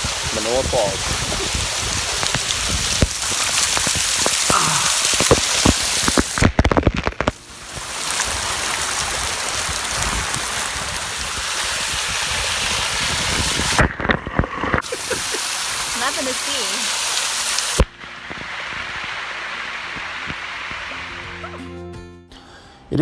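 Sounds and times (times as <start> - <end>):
waterfall rushing: 0.0 - 6.7, 7.3 - 13.8, 14.8 - 21.6.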